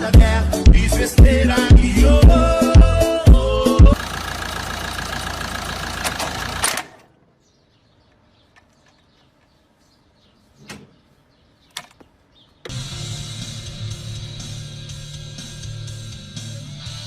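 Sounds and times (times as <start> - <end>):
vehicle running rumble: 0.2 - 7.0.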